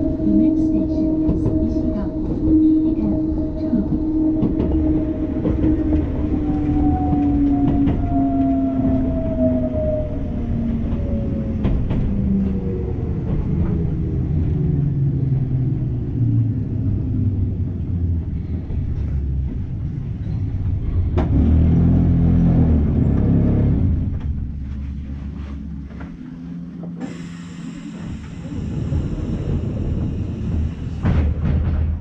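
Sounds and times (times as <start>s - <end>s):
rail clicks: 0.0s - 9.4s, 10.6s - 14.1s, 24.1s - 32.0s
electric train rumble: 0.0s - 32.0s.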